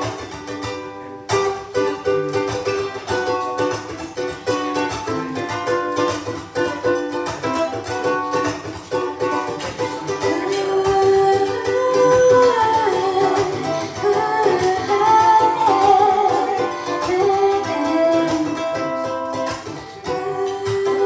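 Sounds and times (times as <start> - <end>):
plucked acoustic string instrument: 0.0 - 21.0
person singing: 9.2 - 21.0.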